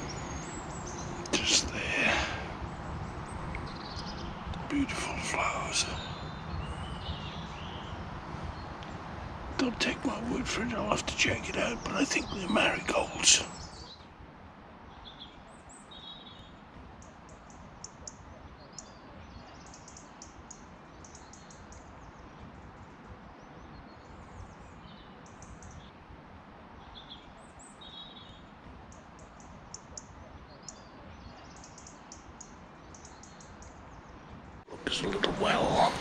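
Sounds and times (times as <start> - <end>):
outdoor ambience hiss: 0.0 - 36.0
songbirds chirping: 0.0 - 36.0.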